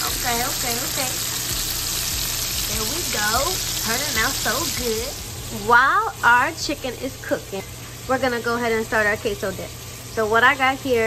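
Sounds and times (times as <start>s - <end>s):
chicken frying in hot oil: 0.0s - 11.0s
person's voice: 2.7s - 11.0s.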